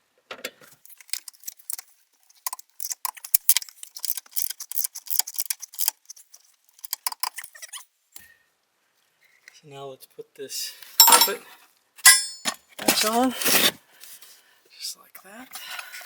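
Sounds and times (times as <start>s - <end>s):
ratchet clicking: 2.5s - 6.2s, 6.8s - 7.5s
metal hand tools clinking: 11.0s - 11.4s, 12.0s - 13.1s.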